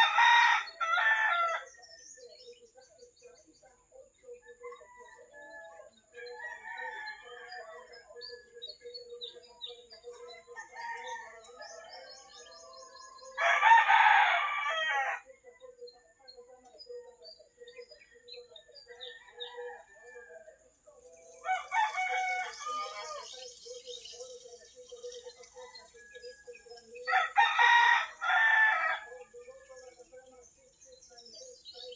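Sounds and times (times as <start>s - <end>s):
rooster crowing: 0.0s - 1.7s, 13.3s - 15.3s, 21.4s - 23.5s, 27.0s - 29.3s
small birds chirping: 0.0s - 31.9s.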